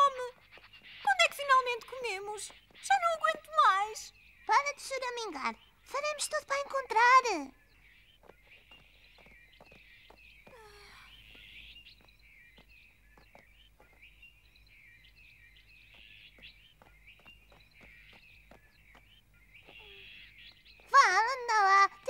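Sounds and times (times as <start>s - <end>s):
small birds chirping: 0.0s - 22.0s
falling bird call: 15.8s - 21.5s.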